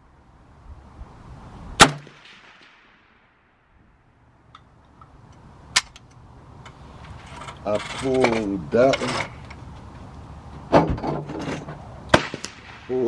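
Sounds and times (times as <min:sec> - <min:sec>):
rifle shots: 0:01.8 - 0:03.3, 0:12.1 - 0:13.0.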